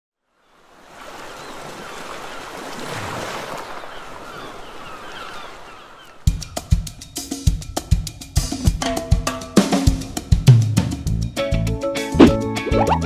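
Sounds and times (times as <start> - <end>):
sea waves washing: 0.5 - 7.1
drum kit kick and snare: 7.4 - 11.2, 12.2 - 13.0.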